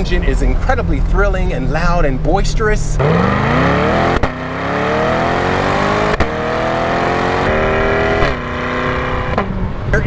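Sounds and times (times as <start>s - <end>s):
car engine accelerating: 0.6s - 10.0s
exhaust cracks on upshifts: 3.0s - 10.0s.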